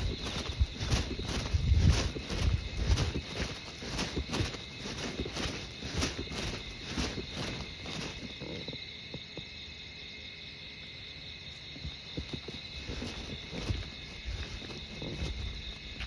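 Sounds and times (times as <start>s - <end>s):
footsteps: 0.0s - 8.8s, 11.8s - 16.0s
insects chirring: 0.0s - 16.0s.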